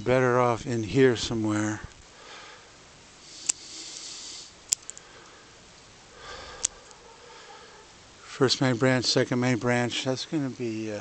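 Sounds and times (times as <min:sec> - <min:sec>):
breathing through the nose: 0:02.1 - 0:07.9
faint ticks: 0:03.4 - 0:05.4, 0:06.5 - 0:07.0.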